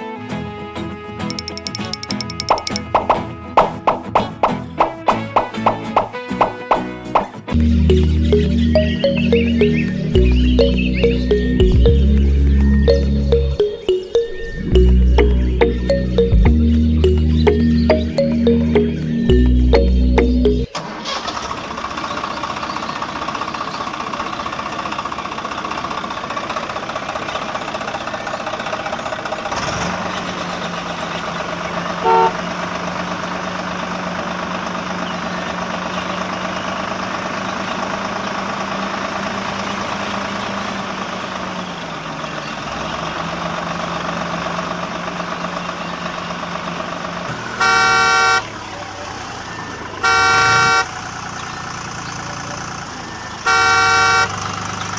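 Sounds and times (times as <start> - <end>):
car horn honking: 32.0 - 32.4, 47.5 - 48.5, 50.0 - 51.0, 53.5 - 54.4.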